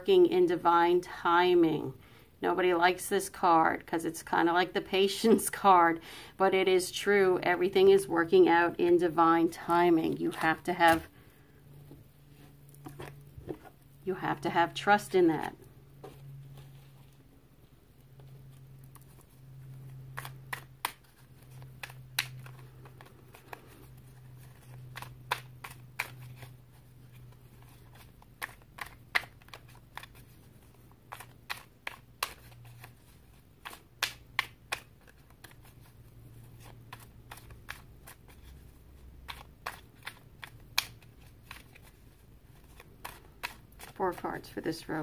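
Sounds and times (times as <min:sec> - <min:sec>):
low steady hum: 0:00.0 - 0:45.0
cards being shuffled: 0:09.5 - 0:11.3, 0:18.1 - 0:45.0.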